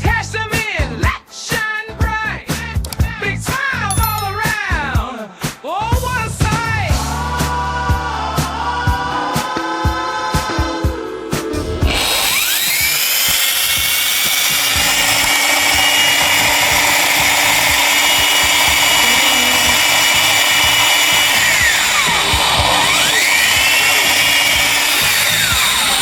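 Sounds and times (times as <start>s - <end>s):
dust extraction rushing: 11.6s - 26.0s
sander motor whine: 11.6s - 26.0s.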